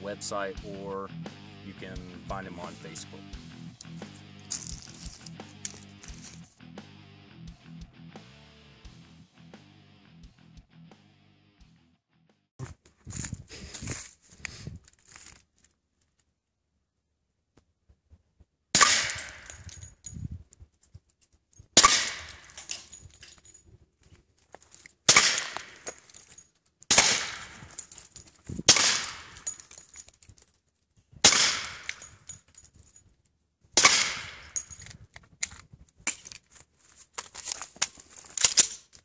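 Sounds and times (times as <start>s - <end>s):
suppressed pistol shots: 18.8s - 19.6s, 21.8s - 22.5s, 25.1s - 25.8s, 26.9s - 27.7s, 28.7s - 29.4s, 31.2s - 32.0s, 33.8s - 34.6s.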